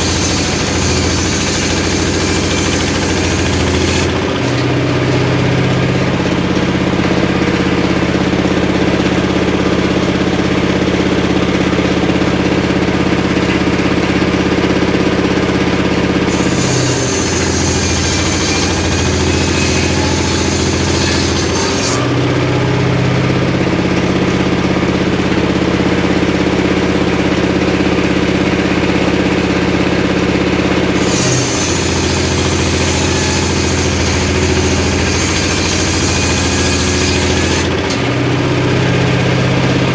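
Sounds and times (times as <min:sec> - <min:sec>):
saw blade cutting wood: 0:00.0 - 0:04.8, 0:16.2 - 0:22.3, 0:30.9 - 0:38.3
engine-driven circular saw running: 0:00.0 - 0:39.9.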